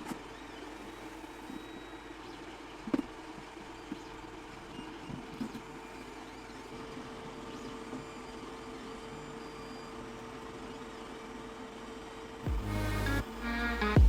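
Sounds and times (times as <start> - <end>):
low machine hum: 12.2 - 14.0.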